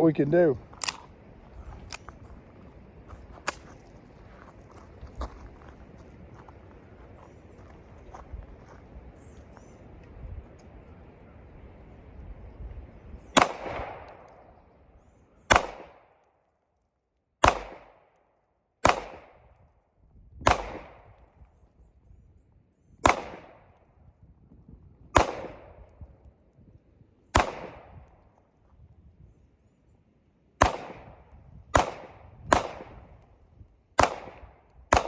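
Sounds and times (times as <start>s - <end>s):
wind rumble on microphone: 0.4s - 15.4s, 19.2s - 30.0s, 30.7s - 35.0s
pistol shots with echo: 13.4s - 14.6s, 15.5s - 16.2s, 17.4s - 18.2s, 18.8s - 19.6s, 20.4s - 21.2s, 23.0s - 23.8s, 25.2s - 25.9s, 27.3s - 28.2s, 30.6s - 33.2s, 34.0s - 35.0s.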